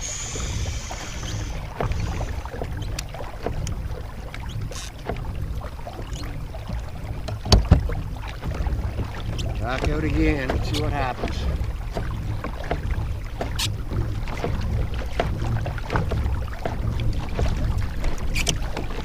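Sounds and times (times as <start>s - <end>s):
wind and water against hull: 0.0s - 19.0s
light clicks and knocks: 6.0s - 19.0s.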